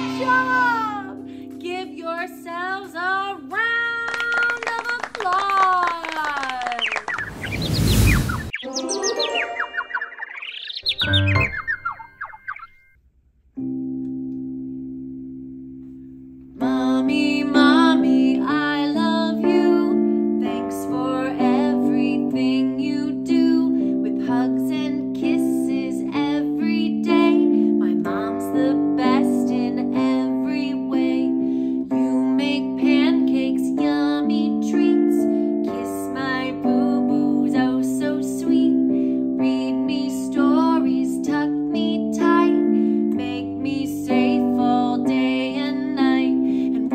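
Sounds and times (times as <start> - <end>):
piano music: 0.0 - 3.6, 8.6 - 12.9, 13.6 - 46.9
woman singing: 0.0 - 6.8, 16.6 - 46.9.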